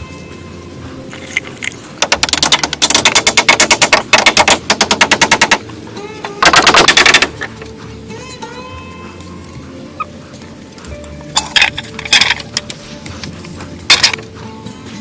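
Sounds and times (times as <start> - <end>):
rapid loud knocking: 2.0 - 5.6.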